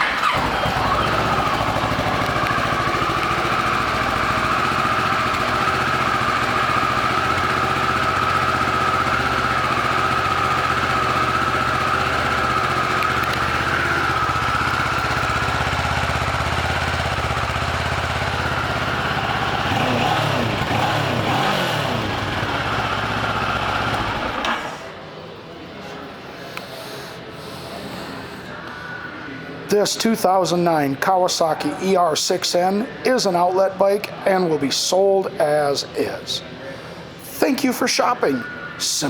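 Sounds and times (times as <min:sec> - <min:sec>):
motorcycle engine revving: 0:00.0 - 0:24.8
motorcycle engine idling: 0:00.2 - 0:24.8.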